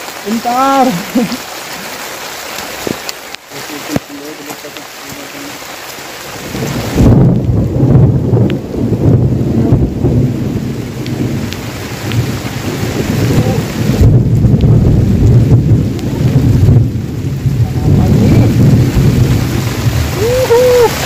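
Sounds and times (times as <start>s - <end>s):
heavy rain falling: 0.0s - 21.0s
loud low rumble: 12.2s - 20.9s.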